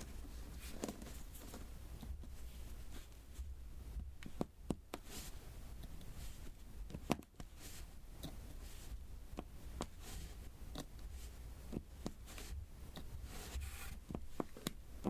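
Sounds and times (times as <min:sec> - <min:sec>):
soft scratching hiss: 0:00.0 - 0:15.0.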